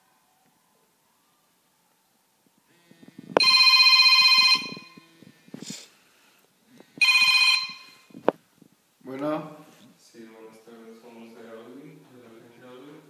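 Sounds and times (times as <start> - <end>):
phone ringtone: 3.4 - 5.0, 7.0 - 8.1.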